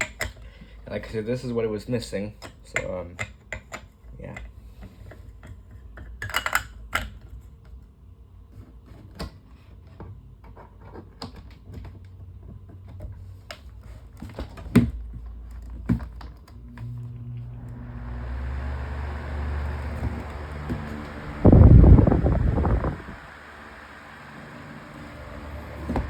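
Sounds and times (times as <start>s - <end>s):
steady low hum: 14.9s - 26.0s.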